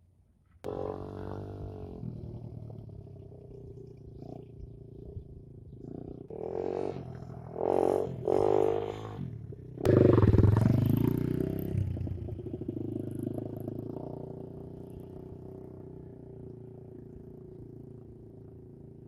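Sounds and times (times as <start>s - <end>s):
dirt bike engine revving: 0.7s - 14.8s.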